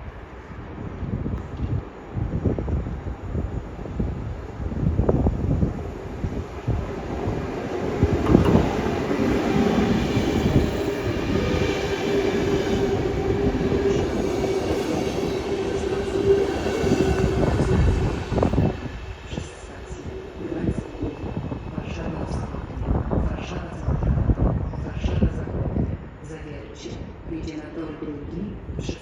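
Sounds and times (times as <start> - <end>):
electric locomotive whine: 2.2 - 23.6
train wheels knocking over rail joints: 8.1 - 10.7.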